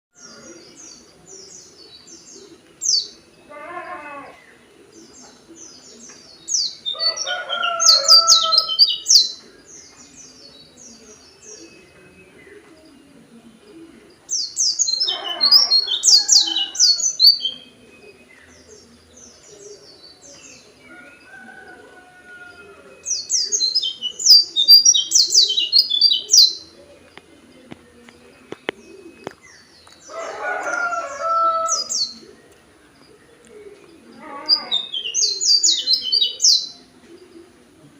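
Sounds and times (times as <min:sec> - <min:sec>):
lower-pitched bird calls: 0:34.0 - 0:36.4
bird high chattering song: 0:34.2 - 0:36.8.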